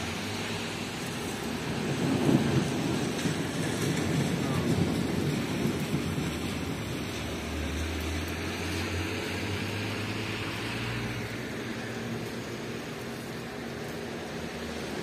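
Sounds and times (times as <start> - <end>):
heavy rain hiss: 0.0 - 15.0.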